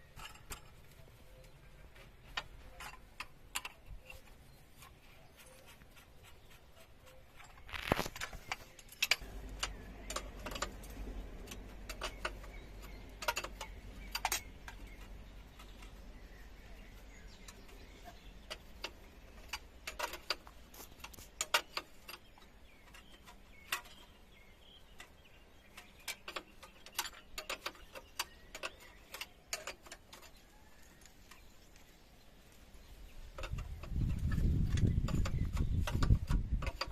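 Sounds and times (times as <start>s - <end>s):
metallic clicks of hand tools: 7.4s - 16.0s.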